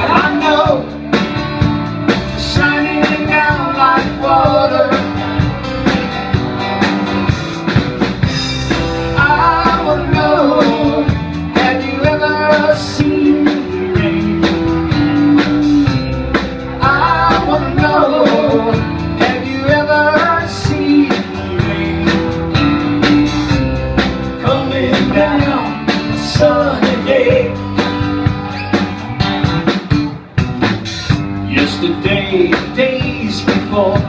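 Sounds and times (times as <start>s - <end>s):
person singing: 0.0s - 1.0s, 2.2s - 5.3s, 9.1s - 23.6s, 24.4s - 27.8s, 31.4s - 34.0s
band playing country-rock song: 0.0s - 34.0s.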